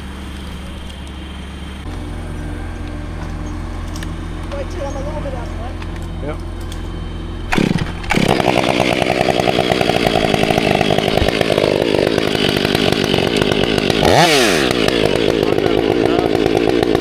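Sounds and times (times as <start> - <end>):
chainsaw running at high revs: 7.4 - 17.0.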